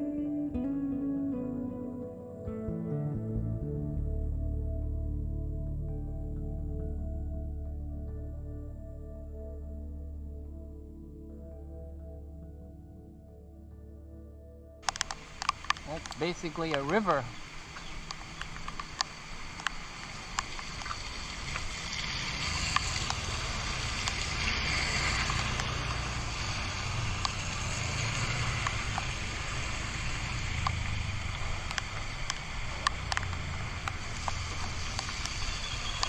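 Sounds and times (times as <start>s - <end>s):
sharp ticks: 14.8s - 21.7s, 30.3s - 36.0s
motorcycle engine hum: 14.8s - 36.0s
water splashing around wheels: 14.8s - 36.0s.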